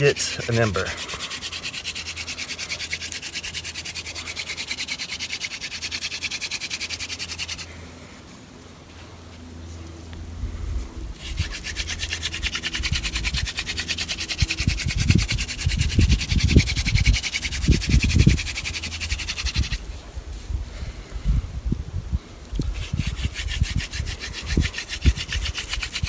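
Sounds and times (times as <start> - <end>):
hand drill spindle scratching wood: 0.0 - 7.7, 11.2 - 19.9, 22.6 - 26.0.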